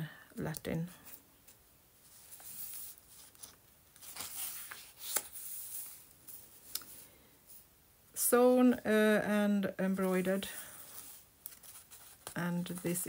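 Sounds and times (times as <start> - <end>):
paper and fabric rustling: 1.0 - 7.6, 10.0 - 13.0.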